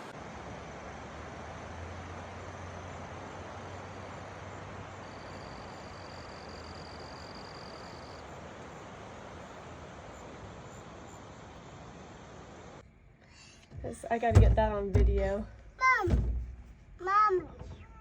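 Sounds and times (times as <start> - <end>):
floodwater rushing: 0.0 - 12.8.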